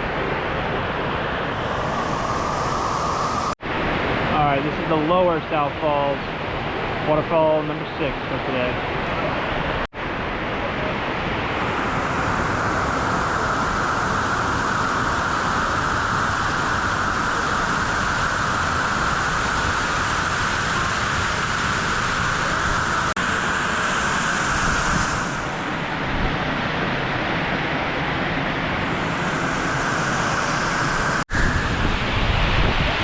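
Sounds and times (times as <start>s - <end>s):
waterfall roaring: 0.0s - 3.6s, 10.5s - 31.9s.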